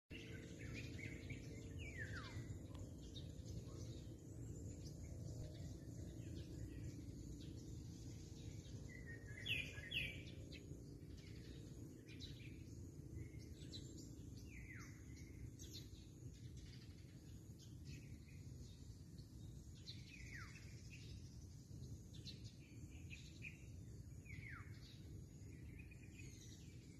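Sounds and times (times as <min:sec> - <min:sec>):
sharp bird chirps: 0:04.8 - 0:16.1.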